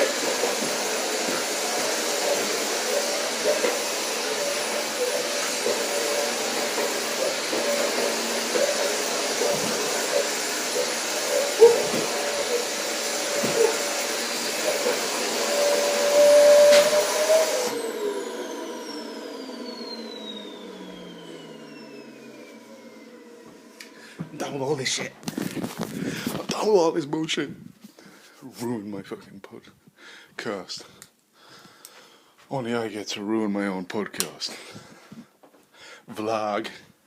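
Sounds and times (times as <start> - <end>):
vacuum motor spinning down: 0.0 - 26.4
vacuum cleaner running: 0.0 - 26.8.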